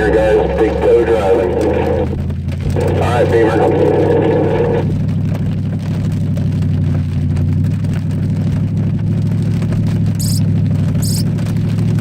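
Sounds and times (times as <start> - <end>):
car engine at steady pitch: 0.0 - 12.0
tyres hissing on wet pavement: 9.9 - 11.7
high-pitched chirp: 10.2 - 10.4, 11.0 - 11.2.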